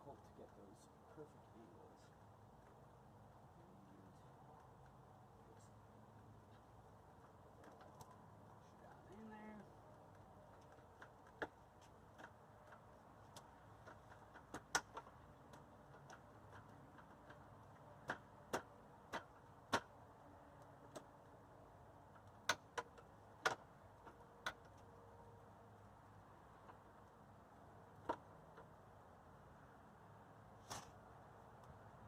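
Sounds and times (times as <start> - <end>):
hand tools clicking and tapping: 6.5 - 8.6, 9.8 - 21.3, 22.0 - 24.9.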